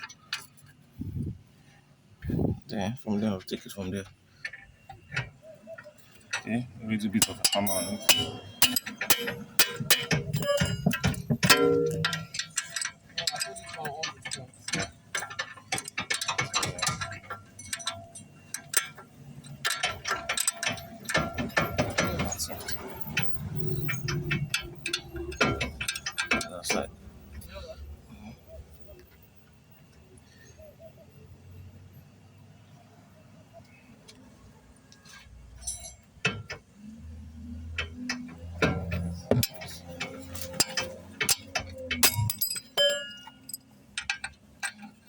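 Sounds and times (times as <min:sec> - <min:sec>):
metal tools clinking on bolts: 0:03.2 - 0:27.8, 0:34.9 - 0:45.0.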